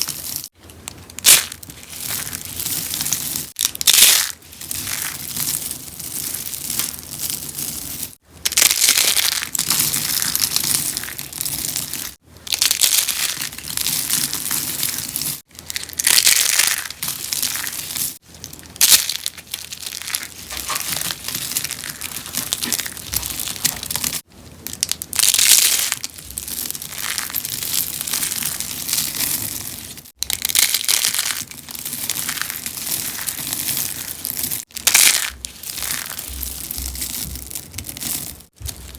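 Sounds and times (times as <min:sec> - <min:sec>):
soap crunching: 0:18.6 - 0:38.9.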